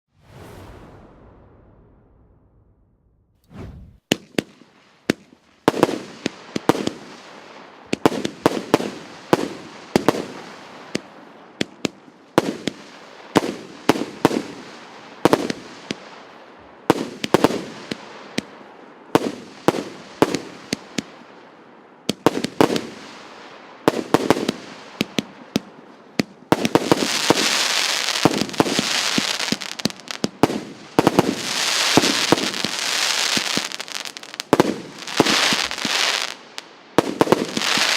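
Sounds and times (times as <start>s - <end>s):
firework bangs: 22.1s - 37.9s
firework crackling: 22.1s - 37.9s.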